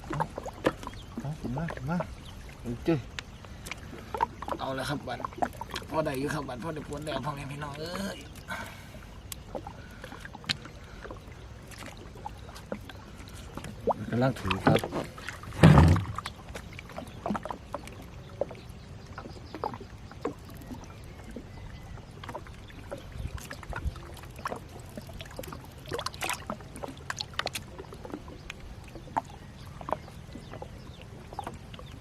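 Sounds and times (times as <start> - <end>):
water splashing and dripping: 0.0 - 32.0
knocks against boat: 14.4 - 16.3.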